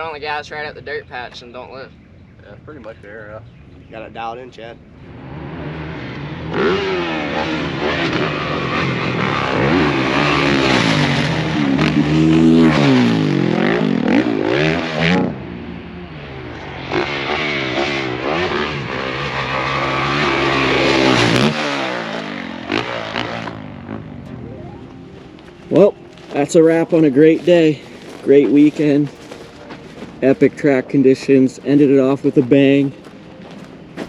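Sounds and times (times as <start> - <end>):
motocross bike engine revving: 5.0 - 34.0.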